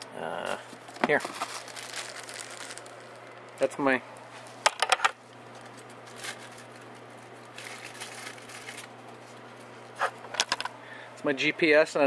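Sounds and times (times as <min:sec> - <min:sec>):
steady low hum: 0:00.0 - 0:12.0
objects clicking and knocking: 0:10.3 - 0:10.7.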